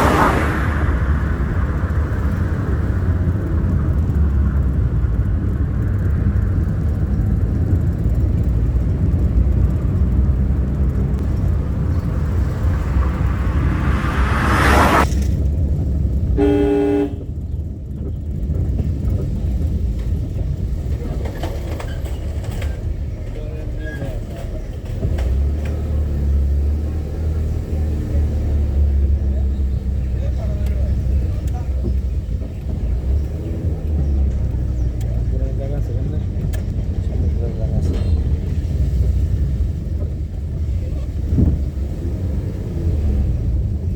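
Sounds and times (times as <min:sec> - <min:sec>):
vehicle passing close by: 0:00.0 - 0:05.2, 0:09.1 - 0:17.2
car driving rumble: 0:00.0 - 0:43.9
vehicle horn honk: 0:16.4 - 0:17.3.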